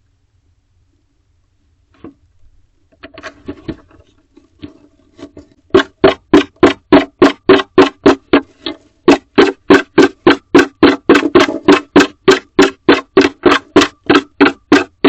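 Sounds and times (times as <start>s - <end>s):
owl scratching wooden box: 3.0s - 15.0s
knocks: 5.4s - 15.0s.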